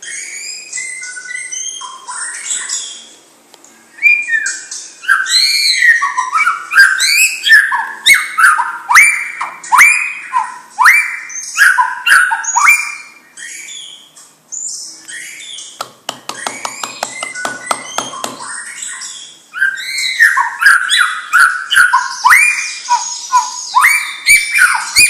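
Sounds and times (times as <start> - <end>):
bird singing whistled phrases: 0.0 - 3.1, 3.9 - 25.0
rapid bird clicking: 15.8 - 18.4.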